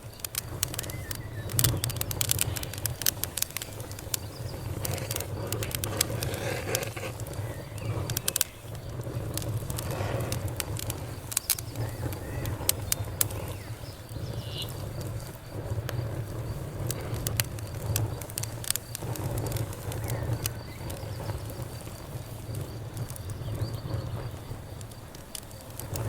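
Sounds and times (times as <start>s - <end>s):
campfire crackling and popping: 0.0s - 26.0s
fire low rumble: 0.0s - 26.0s.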